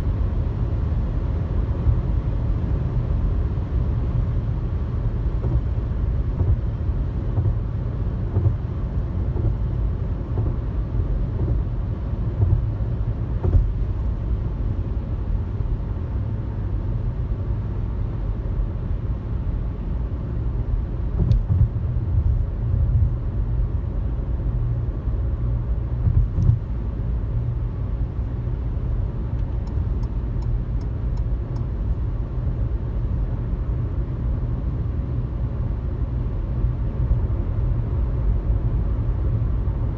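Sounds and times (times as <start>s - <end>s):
car road and engine rumble: 0.0s - 39.9s
thumps from road bumps: 5.3s - 14.3s, 21.1s - 22.4s, 25.9s - 27.0s.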